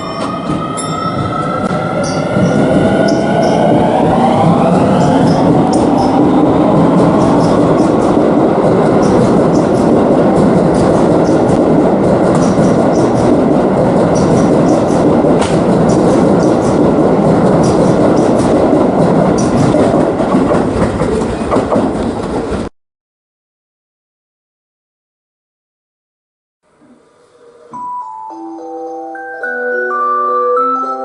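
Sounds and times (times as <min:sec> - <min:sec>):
electric train rumbling: 0:00.0 - 0:22.7, 0:26.7 - 0:29.2
wheels clicking over rails: 0:00.0 - 0:22.7.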